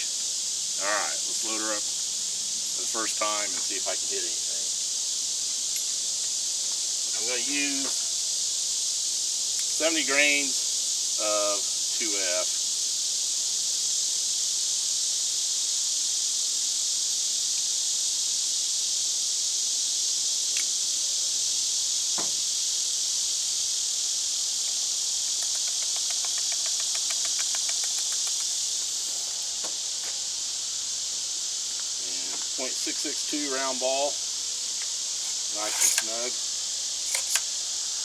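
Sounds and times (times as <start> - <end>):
insect chorus drone: 0.0 - 38.0
muzzleloader being loaded clicks: 37.1 - 37.5.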